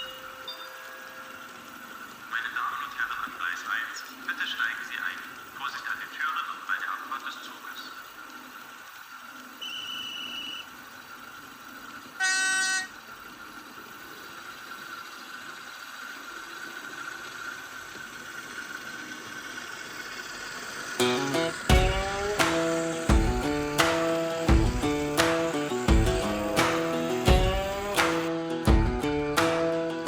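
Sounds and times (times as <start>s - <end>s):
model locomotive whine: 0.0s - 30.0s
locomotive horn toot: 9.6s - 10.7s, 12.2s - 13.0s
short high beep: 9.6s - 10.7s, 12.2s - 12.9s
music: 21.0s - 30.0s.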